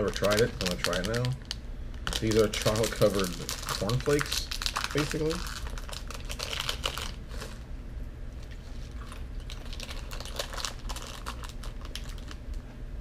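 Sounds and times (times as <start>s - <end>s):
plastic wrapper crinkling: 0.0s - 7.6s, 8.9s - 12.6s
cornflakes being chewed: 2.1s - 7.6s, 8.7s - 12.7s.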